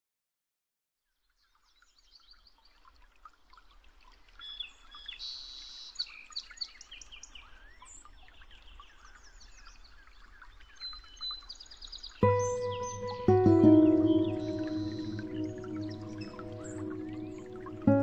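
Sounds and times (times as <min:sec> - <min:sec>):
small birds chirping: 0:04.3 - 0:18.0.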